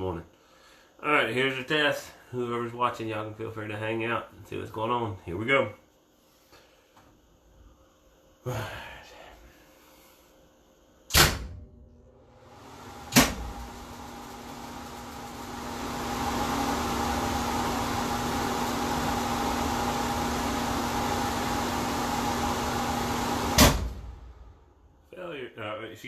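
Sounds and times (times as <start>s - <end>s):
power supply humming: 11.8s - 24.7s.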